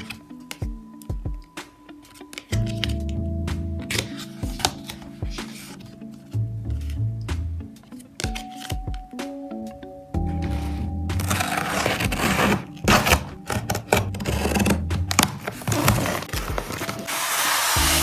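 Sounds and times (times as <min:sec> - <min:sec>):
soft background music: 0:00.0 - 0:18.0
packaging rustling and clicking: 0:11.2 - 0:17.2.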